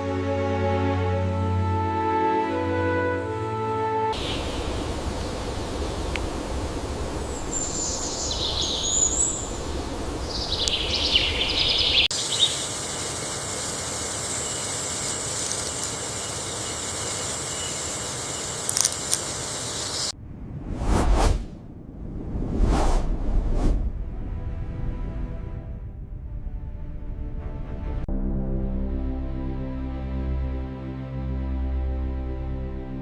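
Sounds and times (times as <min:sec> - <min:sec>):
birds chirping: 0:04.2 - 0:20.1
steady high hiss: 0:04.2 - 0:20.2
short clicks: 0:18.6 - 0:19.4.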